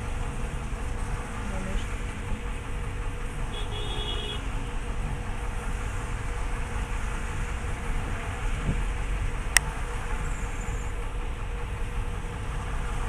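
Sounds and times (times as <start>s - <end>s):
moving car road and engine noise: 0.0s - 13.0s.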